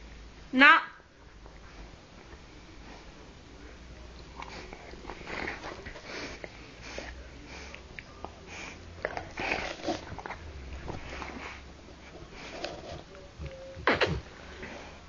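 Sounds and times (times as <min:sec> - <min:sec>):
dog sniffing: 0:04.2 - 0:13.1.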